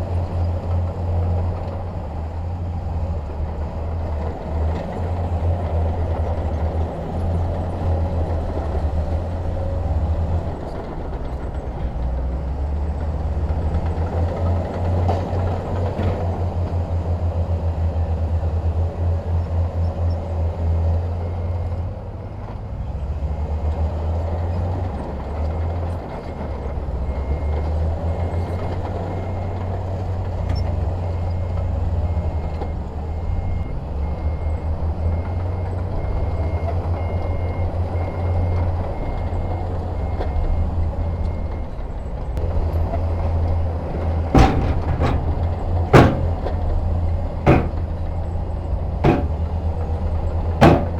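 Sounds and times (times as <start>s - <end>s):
diesel engine droning: 26.0s - 50.9s
sharp bang: 44.3s - 46.6s, 47.5s - 48.1s, 49.0s - 49.5s, 50.6s - 50.9s.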